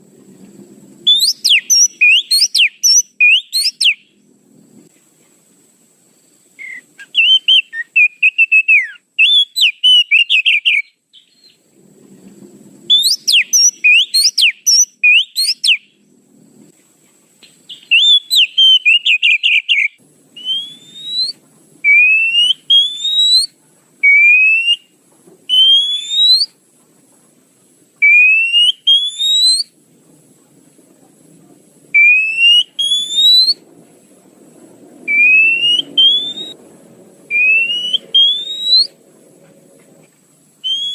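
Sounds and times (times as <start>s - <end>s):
bird rising whistles: 1.0s - 4.1s, 6.6s - 11.6s, 12.9s - 15.9s, 17.7s - 24.9s, 25.5s - 26.6s, 28.0s - 29.7s, 32.0s - 33.6s, 35.1s - 36.6s, 37.3s - 39.0s, 40.6s - 40.9s
bird chattering song: 1.1s - 4.0s, 6.6s - 11.6s, 12.9s - 15.9s, 17.4s - 24.8s, 32.0s - 33.6s, 35.1s - 36.6s, 37.3s - 39.0s.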